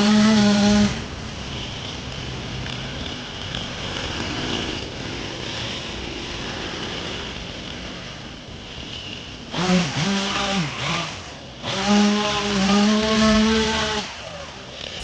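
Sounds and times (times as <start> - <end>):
tractor and mower droning: 0.0 - 15.0.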